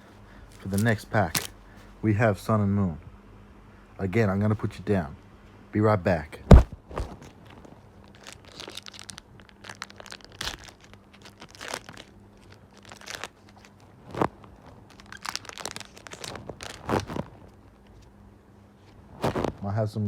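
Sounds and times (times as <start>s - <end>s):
foil wrapper crinkling and tearing: 0.5s - 1.5s, 6.5s - 18.0s, 19.2s - 19.6s.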